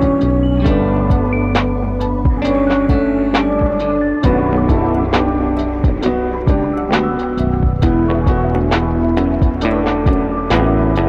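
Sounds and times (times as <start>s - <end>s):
held instrumental notes: 0.0s - 11.0s
steady beat: 0.0s - 11.0s.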